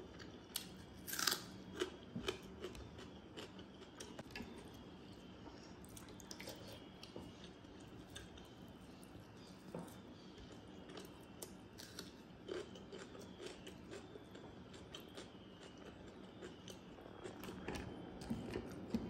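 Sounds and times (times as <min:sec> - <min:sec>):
person chewing: 0:00.2 - 0:04.6, 0:10.2 - 0:19.0.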